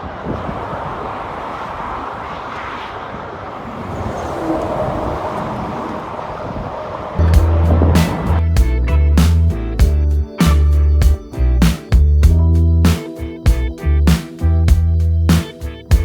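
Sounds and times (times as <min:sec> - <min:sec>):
cars passing: 0:00.0 - 0:09.8
music with strong beat: 0:07.2 - 0:16.0.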